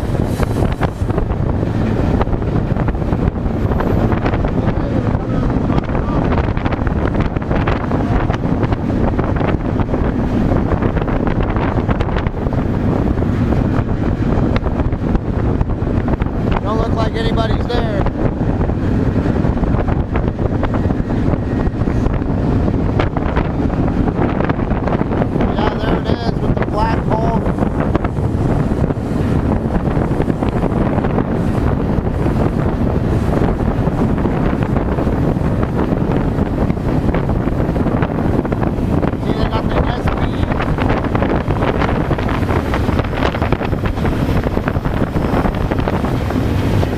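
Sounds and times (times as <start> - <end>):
train low rumble: 0.0 - 46.9
wind buffeting microphone: 0.0 - 46.9.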